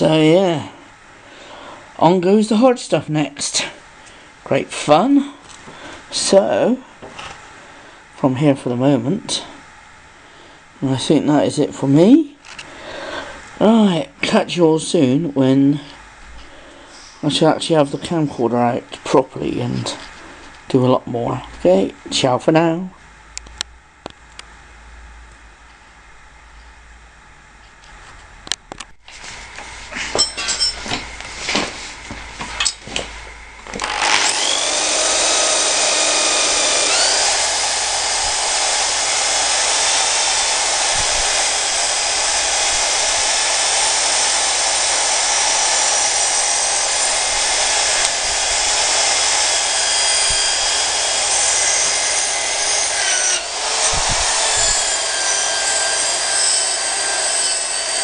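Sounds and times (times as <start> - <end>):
power tool high whine: 33.6 - 58.0.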